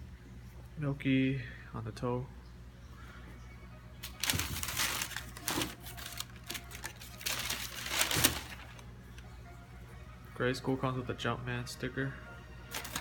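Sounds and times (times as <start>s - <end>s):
paper packaging rustling: 4.0s - 8.9s, 12.7s - 13.0s.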